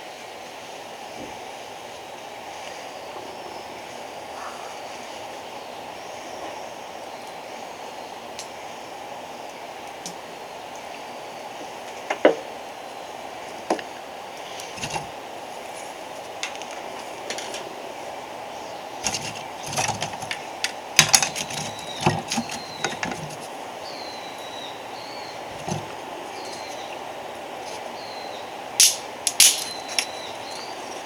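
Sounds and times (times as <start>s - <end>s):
wooden and metallic knocks: 14.8s - 15.1s, 19.0s - 23.4s, 25.5s - 26.0s
bird chirping: 18.4s - 28.8s, 29.6s - 31.0s.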